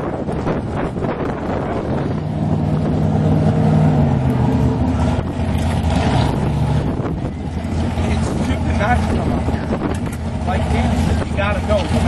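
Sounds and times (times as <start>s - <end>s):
engine running steadily: 0.0s - 12.0s
wind buffeting microphone: 0.0s - 12.0s.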